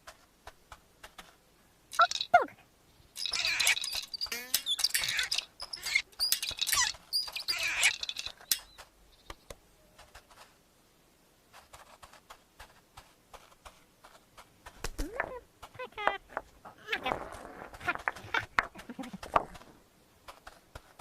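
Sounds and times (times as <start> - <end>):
scurrying patter: 0.0 - 9.0, 9.8 - 10.6, 11.4 - 21.0
cartoon squeaks: 2.0 - 2.5, 3.2 - 8.8, 16.8 - 18.5.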